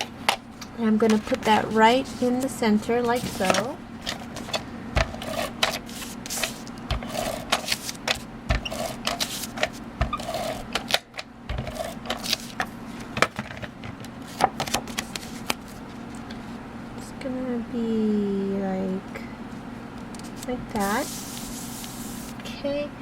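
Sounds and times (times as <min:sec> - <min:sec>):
cardstock clicks and rustles: 0:03.1 - 0:15.8.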